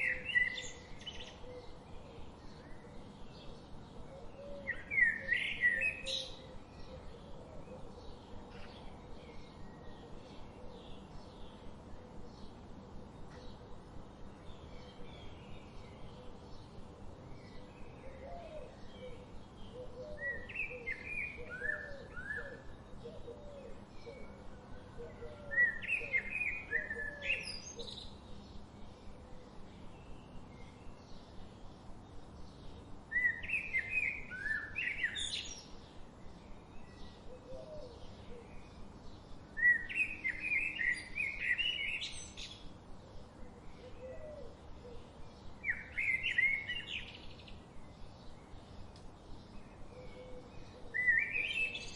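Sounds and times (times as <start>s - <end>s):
bird song phrase: 0.0s - 51.9s
low repeated bird call: 14.5s - 31.5s, 32.6s - 51.9s.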